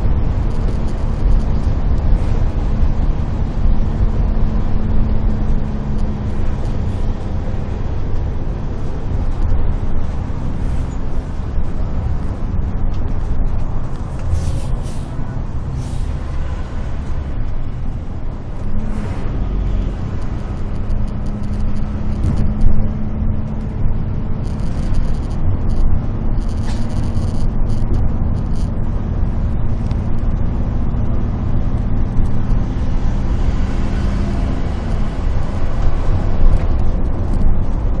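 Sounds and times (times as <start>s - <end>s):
bus engine droning: 0.0s - 38.0s
road traffic: 0.0s - 38.0s
short air hisses: 14.2s - 16.2s.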